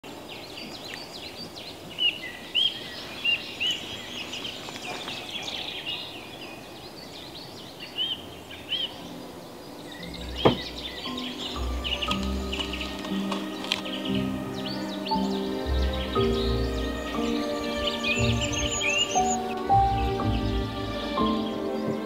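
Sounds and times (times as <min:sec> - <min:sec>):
songbirds singing and chirping: 0:00.0 - 0:22.0
bird whistling rising-falling note: 0:09.9 - 0:22.0.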